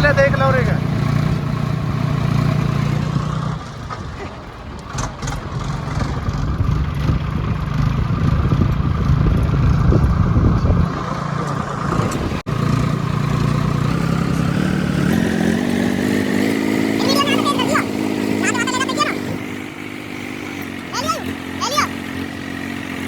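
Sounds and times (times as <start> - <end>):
diesel tractor engine revving: 0.0 - 23.0.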